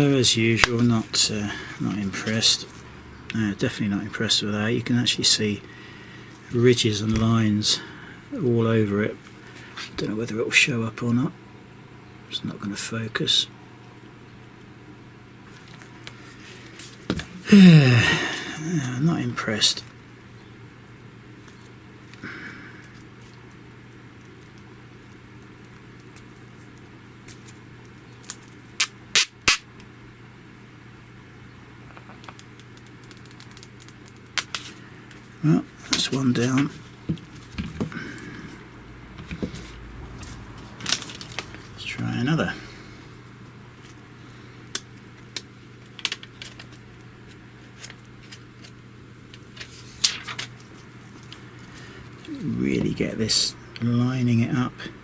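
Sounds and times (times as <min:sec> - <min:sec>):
steady low hum: 0:00.0 - 0:55.0
plastic packaging handled: 0:39.2 - 0:41.9.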